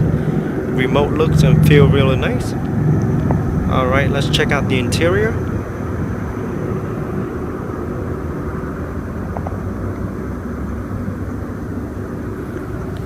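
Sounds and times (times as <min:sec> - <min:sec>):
distant engines rumbling: 0:00.0 - 0:13.0.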